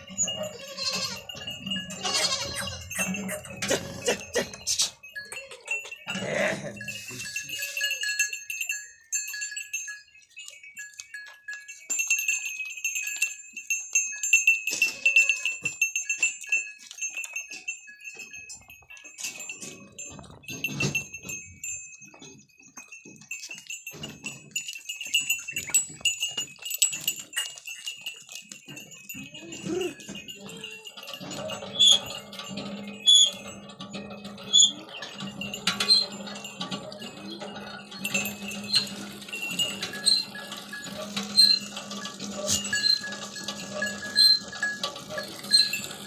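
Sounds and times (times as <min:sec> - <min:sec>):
goat calling: 0:00.1 - 0:08.1
small clicks and rustles: 0:09.3 - 0:34.4.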